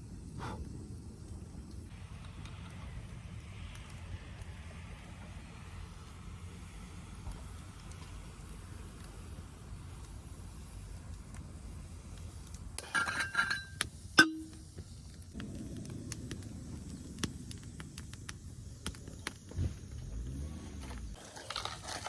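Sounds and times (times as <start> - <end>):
low steady rumble: 0.0 - 21.2
light metallic clinks: 12.8 - 14.7
sharp ringing metal clank: 13.0 - 14.6.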